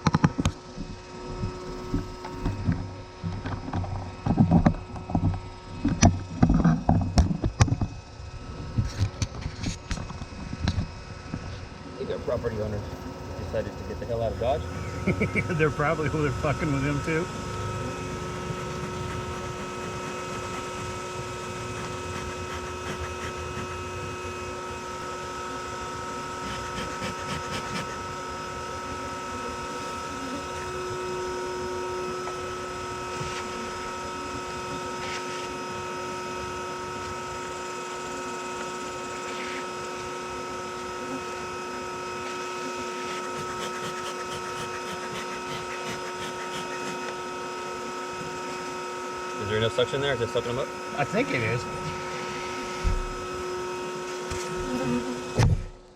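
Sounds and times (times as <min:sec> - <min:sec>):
vacuum motor whining: 0:00.0 - 0:55.9.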